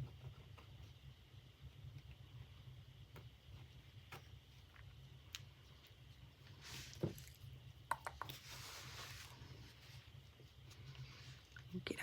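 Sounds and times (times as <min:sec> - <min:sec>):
soft hiss: 0:04.9 - 0:12.0.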